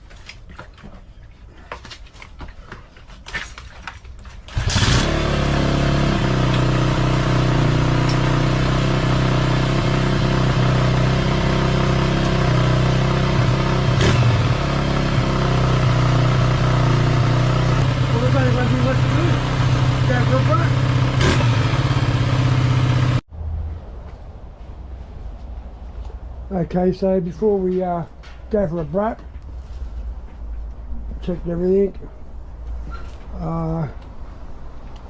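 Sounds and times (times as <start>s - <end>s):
motorcycle engine idling: 4.6s - 23.2s.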